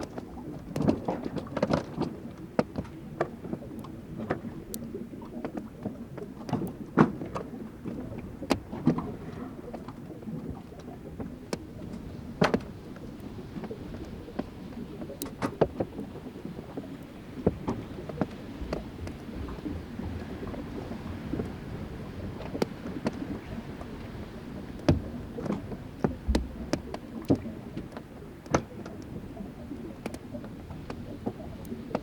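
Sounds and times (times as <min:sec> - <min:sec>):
continuous low rumble: 0:00.0 - 0:32.0.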